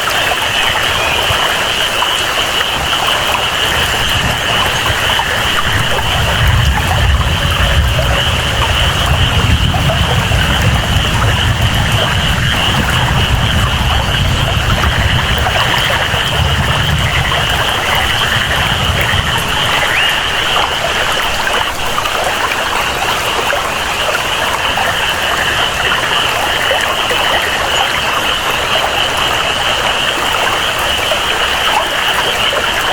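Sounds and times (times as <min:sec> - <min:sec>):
flowing water: 0:00.0 - 0:32.9
steady rain: 0:00.0 - 0:32.9
low rumble: 0:04.1 - 0:21.5.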